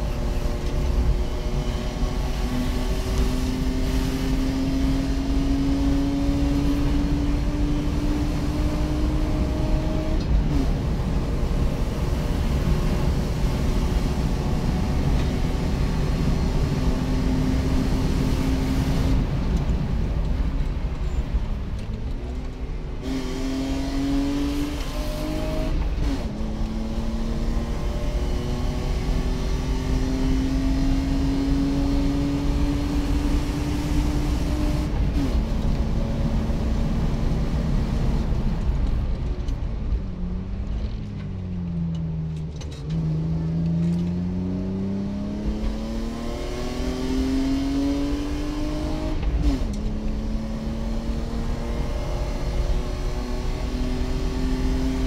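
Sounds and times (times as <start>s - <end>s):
car engine at full throttle: 0.0s - 55.0s.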